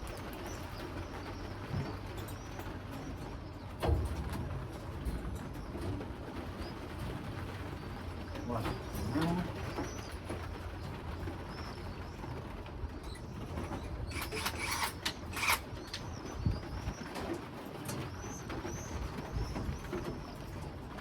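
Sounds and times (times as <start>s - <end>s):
pigeons cooing: 7.8s - 10.9s.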